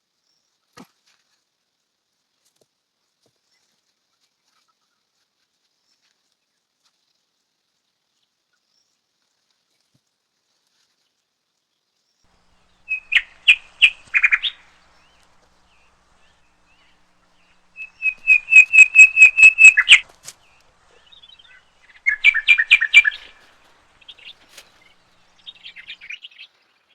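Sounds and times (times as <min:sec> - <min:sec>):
songbird chirping: 0:12.3 - 0:26.6.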